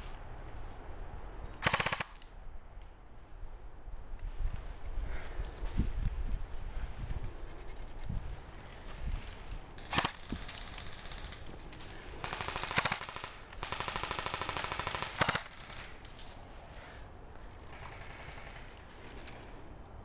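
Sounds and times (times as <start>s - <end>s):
airsoft guns firing: 1.6s - 2.2s, 9.8s - 11.5s, 12.2s - 16.1s.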